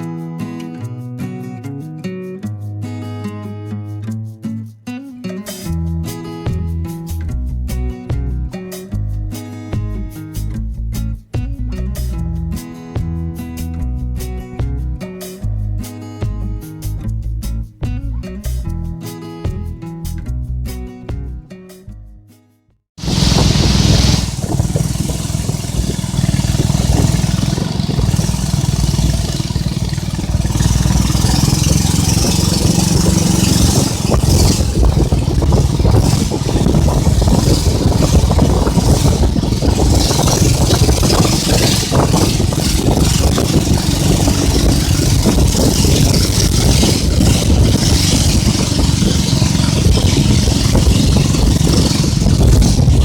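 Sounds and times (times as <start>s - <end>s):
steady hiss: 23.0s - 34.5s
boat engine droning: 23.0s - 53.0s.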